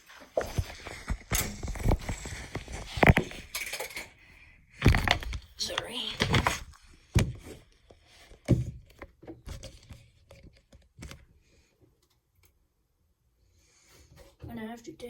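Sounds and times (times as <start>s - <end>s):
plastic parts knocking and clicking: 0.4s - 11.3s.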